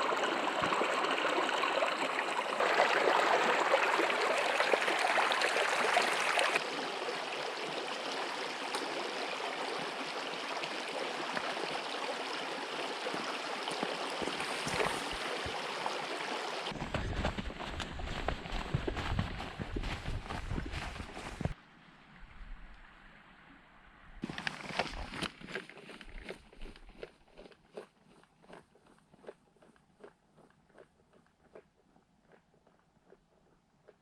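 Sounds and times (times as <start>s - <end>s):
creek water flowing: 0.0s - 21.6s.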